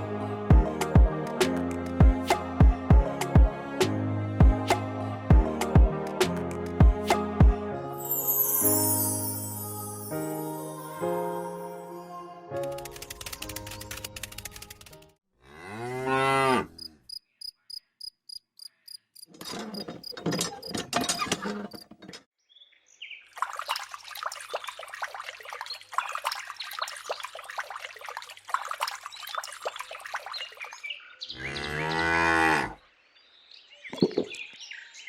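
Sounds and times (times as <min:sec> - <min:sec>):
music: 0:00.0 - 0:15.2
quick ticks: 0:12.6 - 0:15.1
cow mooing: 0:15.4 - 0:16.9, 0:31.4 - 0:32.8.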